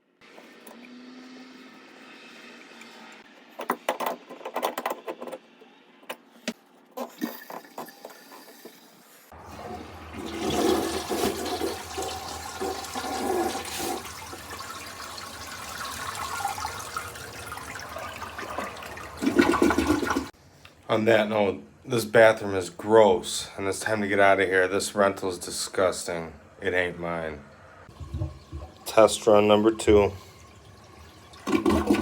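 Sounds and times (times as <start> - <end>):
toilet flushing: 7.0 - 20.4, 27.8 - 32.0.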